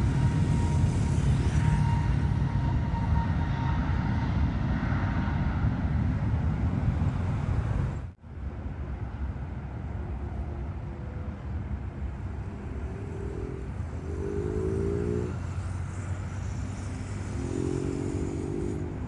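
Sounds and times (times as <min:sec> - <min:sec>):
jet engines rumbling: 0:00.0 - 0:08.2.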